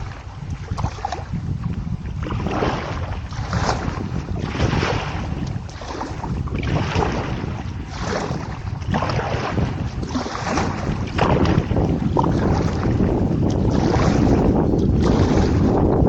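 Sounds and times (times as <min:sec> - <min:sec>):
paddle strokes splashing water: 0:00.0 - 0:16.0
wind buffeting microphone: 0:00.0 - 0:16.0.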